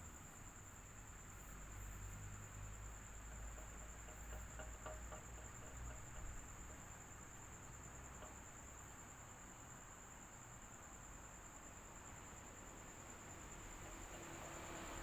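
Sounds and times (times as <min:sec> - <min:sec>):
faint ticks: 0:01.4 - 0:09.3.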